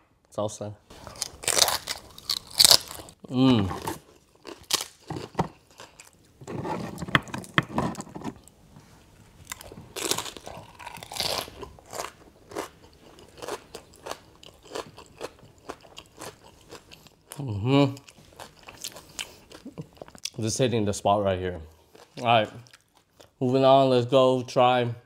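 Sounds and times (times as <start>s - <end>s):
crunching and chewing crisp food: 0.9s - 8.1s, 9.4s - 20.4s, 21.7s - 23.6s.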